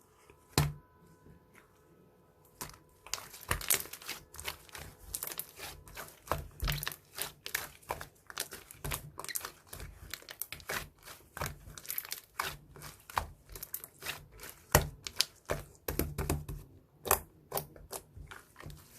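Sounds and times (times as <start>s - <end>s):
slime crackling and popping: 3.0s - 16.0s.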